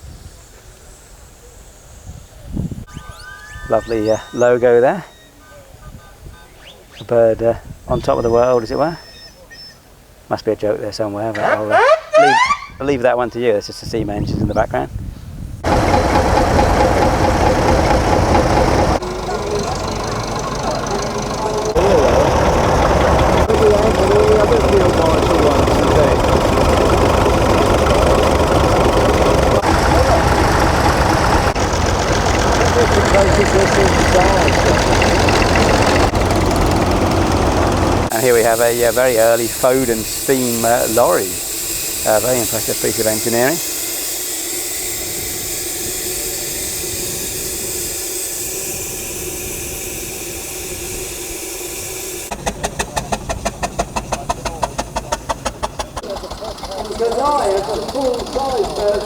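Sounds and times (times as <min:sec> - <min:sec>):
people talking: 0:03.7 - 0:09.0, 0:10.3 - 0:14.9, 0:19.0 - 0:27.2, 0:29.5 - 0:30.7, 0:32.6 - 0:36.0, 0:38.1 - 0:41.4, 0:42.0 - 0:43.7, 0:52.5 - 0:53.4, 0:54.0 - 0:59.0
engine rumbling: 0:14.2 - 0:59.0
steam hissing: 0:15.6 - 0:59.0.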